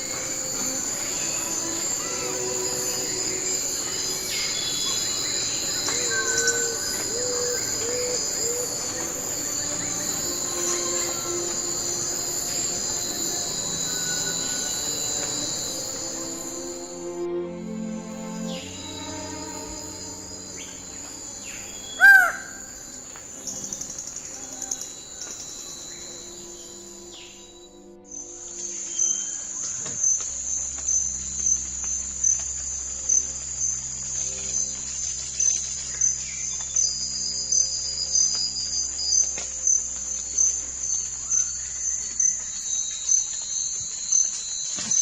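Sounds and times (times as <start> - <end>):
faint high whistles: 0.0 - 16.8
insects chorus: 0.0 - 45.0
bird call: 0.1 - 16.3, 18.4 - 26.7
rapid bird trill: 18.9 - 22.9.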